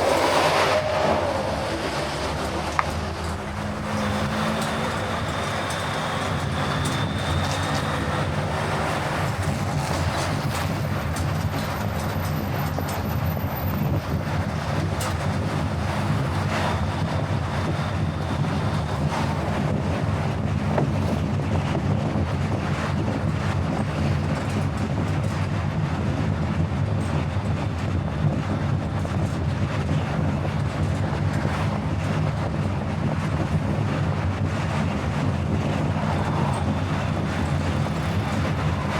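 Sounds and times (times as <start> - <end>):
low engine drone: 0.0 - 11.1
tyre and road noise: 0.0 - 38.9.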